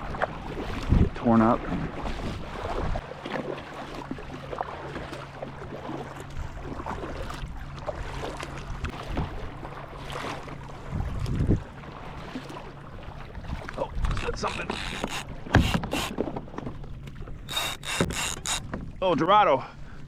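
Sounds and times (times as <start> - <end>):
wind noise on microphone: 0.0 - 3.0, 10.9 - 11.7, 13.4 - 16.2
paddle splashing in water: 0.0 - 19.1.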